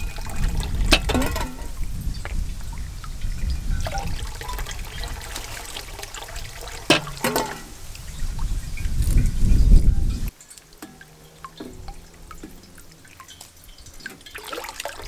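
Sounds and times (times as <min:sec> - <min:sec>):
water trickling and pouring: 0:00.0 - 0:15.0
sharp knocks: 0:06.9 - 0:07.7.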